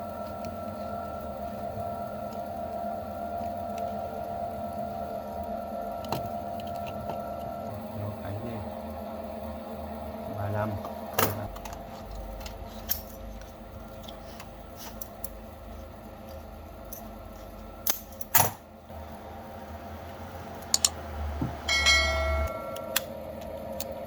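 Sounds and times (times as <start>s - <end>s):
low steady hum: 0.0s - 24.0s
metallic ringing tone: 21.6s - 23.3s
metal tools clinking: 21.7s - 23.0s.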